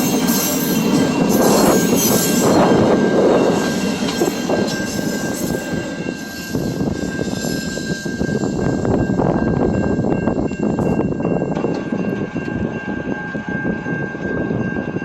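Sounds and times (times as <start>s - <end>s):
high squeal: 0.0s - 8.7s
train wheels rumbling on rail: 0.0s - 15.0s.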